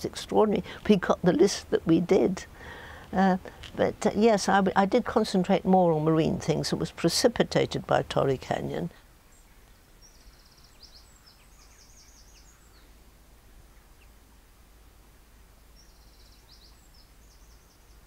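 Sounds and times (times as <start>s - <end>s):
low steady hum: 0.0s - 18.0s
songbird singing trill: 9.2s - 14.2s, 15.3s - 18.0s.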